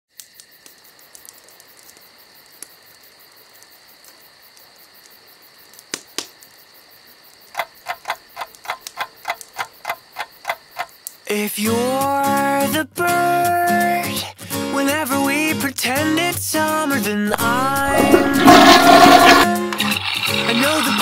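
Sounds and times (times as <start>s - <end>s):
high cricket-like chirring: 0.2s - 11.5s, 17.4s - 21.0s.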